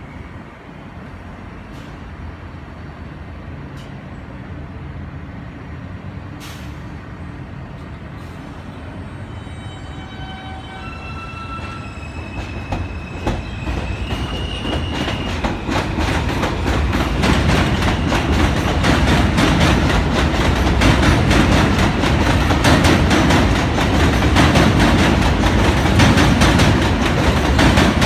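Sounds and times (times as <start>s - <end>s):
heavy train rumble: 0.0s - 28.0s
high wheel squeal: 8.9s - 16.0s
train wheels clattering over joints: 12.3s - 28.0s.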